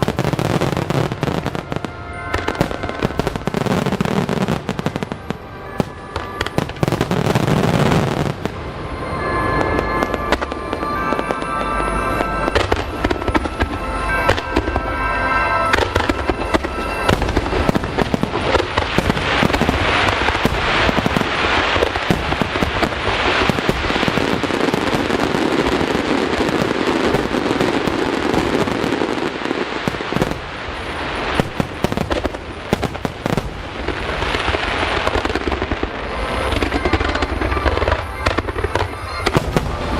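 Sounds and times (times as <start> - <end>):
fireworks bursting and crackling: 0.0 - 39.9
music playing: 0.2 - 29.6.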